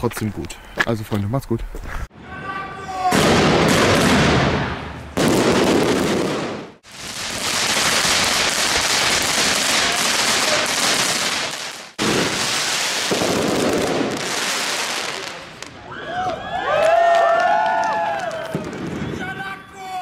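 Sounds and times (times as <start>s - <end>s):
fireworks crackling: 3.1s - 15.8s.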